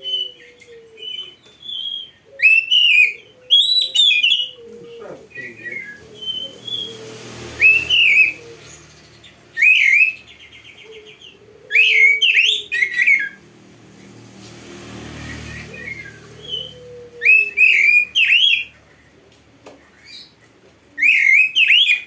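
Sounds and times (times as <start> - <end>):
bird singing whistled notes: 5.3 - 7.0, 7.6 - 13.4, 15.2 - 18.7, 21.0 - 22.0.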